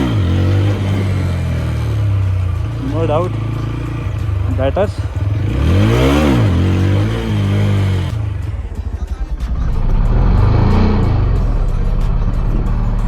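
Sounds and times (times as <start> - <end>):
motorcycle engine under hard throttle: 0.0 - 13.0.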